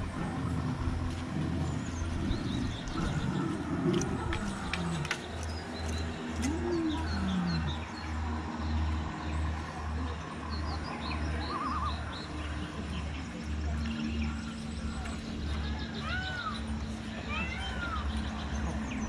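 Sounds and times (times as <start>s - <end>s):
low pulsing throb: 0.0s - 11.4s
small birds chirping: 0.0s - 19.0s.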